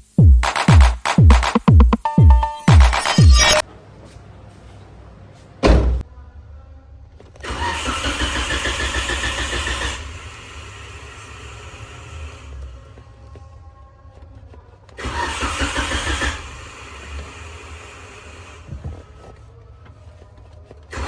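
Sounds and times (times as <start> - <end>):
intro music: 0.0 - 3.6
thud: 5.6 - 6.0
car starter cranking engine: 7.4 - 10.6, 15.0 - 17.1.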